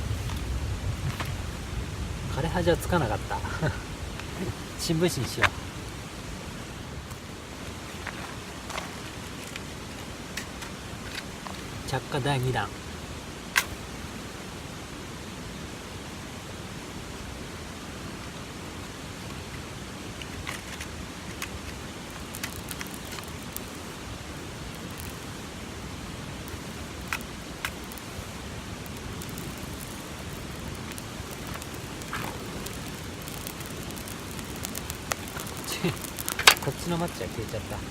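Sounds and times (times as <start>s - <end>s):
outdoor background hiss: 0.0s - 37.9s
sharp snaps and clicks: 13.6s - 13.8s, 20.2s - 23.9s, 24.5s - 25.4s, 26.4s - 37.9s.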